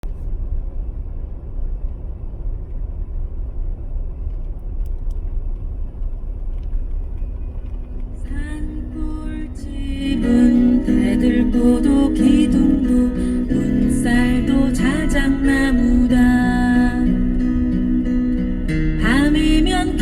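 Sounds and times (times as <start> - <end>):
low rumbling noise: 0.0 - 20.0
plucked string music: 8.3 - 20.0.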